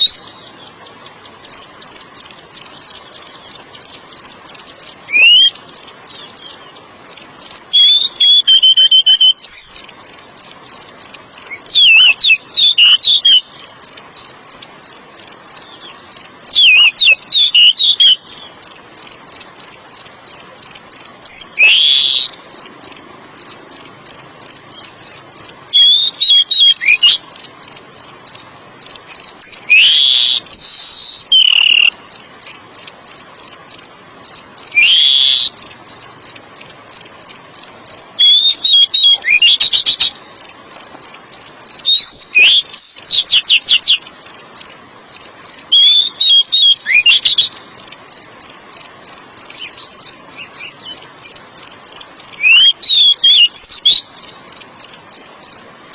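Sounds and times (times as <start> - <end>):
bird singing whistled phrases: 0.0 - 0.9, 4.8 - 6.6, 7.7 - 9.9, 11.4 - 13.7, 16.5 - 18.3, 21.3 - 22.4, 25.7 - 27.2, 29.4 - 32.9, 34.6 - 35.7, 38.2 - 40.2, 41.8 - 44.1, 45.7 - 47.6, 52.2 - 54.1
cricket chirping: 0.0 - 55.7.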